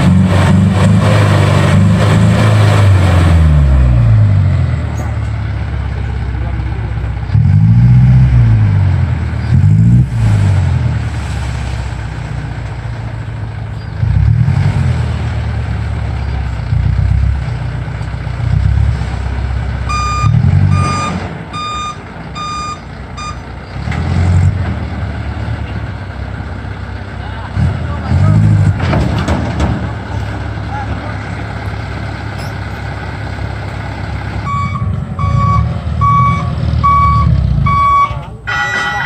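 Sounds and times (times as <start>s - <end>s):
truck diesel engine revving: 0.0s - 38.5s
reversing alarm beeps: 19.9s - 23.4s, 34.4s - 39.0s.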